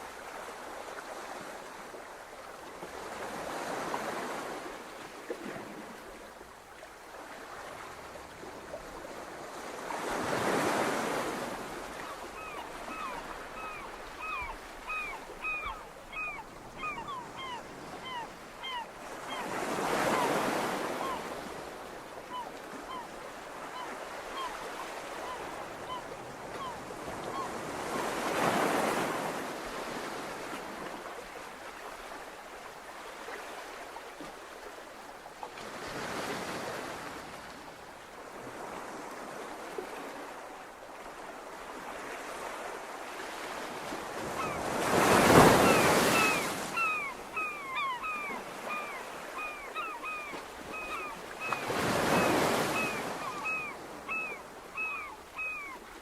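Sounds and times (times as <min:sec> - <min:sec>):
surf washing on beach: 0:41.3 - 0:47.4.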